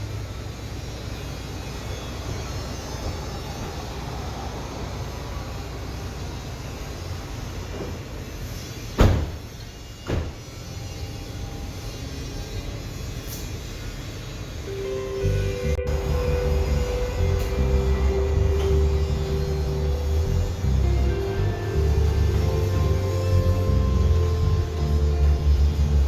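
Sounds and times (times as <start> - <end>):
vehicle driving rumble: 15.2 - 26.0.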